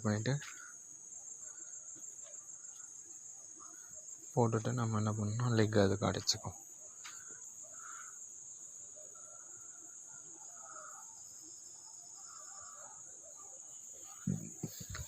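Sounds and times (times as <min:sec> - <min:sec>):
low knock: 0:14.3 - 0:14.8.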